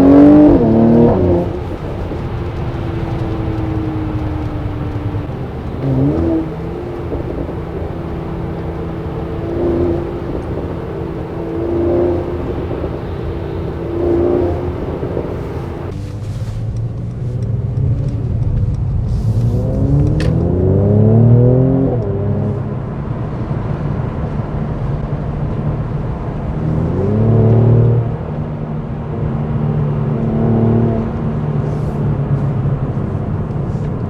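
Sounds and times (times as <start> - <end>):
car engine accelerating: 0.0 - 34.0.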